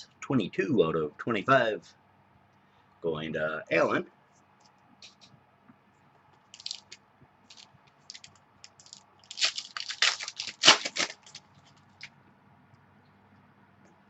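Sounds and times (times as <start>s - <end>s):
trading cards handled: 6.5s - 12.1s.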